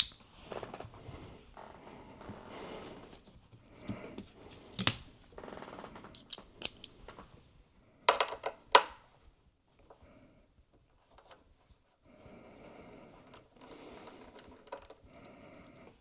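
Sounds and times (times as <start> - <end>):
screwdriver scraping and clicking: 0.0 - 0.3, 6.1 - 7.0.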